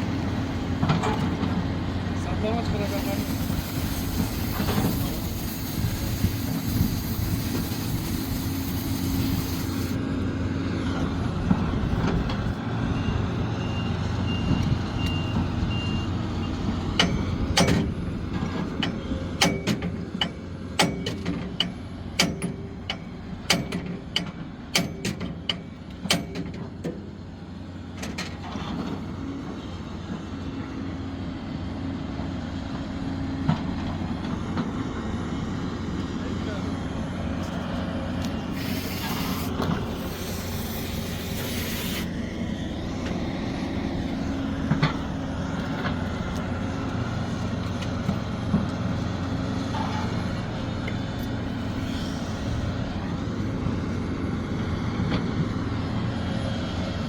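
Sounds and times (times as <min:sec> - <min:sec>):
excavator engine running: 0:00.0 - 0:57.0
hiss: 0:02.8 - 0:10.0, 0:38.4 - 0:42.3, 0:51.5 - 0:52.8.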